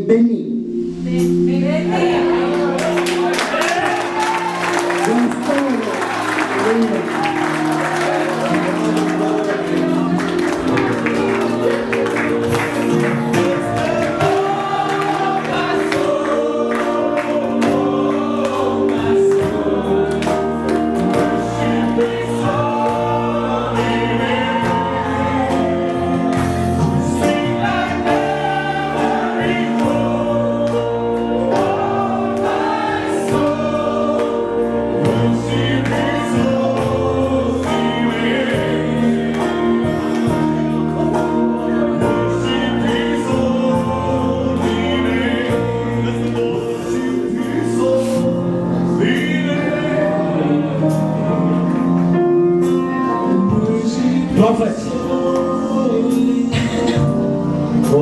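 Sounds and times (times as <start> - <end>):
bass line: 0.0 - 5.4
sustained keyboard chords: 0.0 - 58.0
group of voices singing: 0.6 - 58.0.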